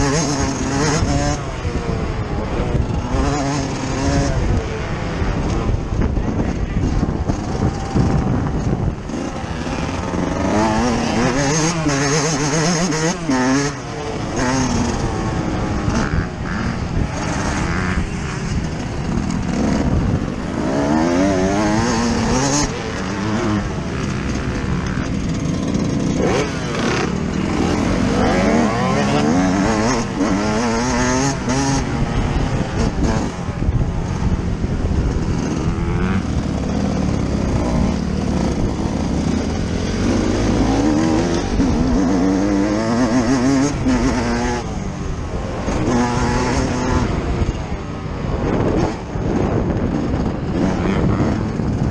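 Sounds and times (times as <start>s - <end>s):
two-stroke motorcycle engine revving: 0.0s - 51.9s.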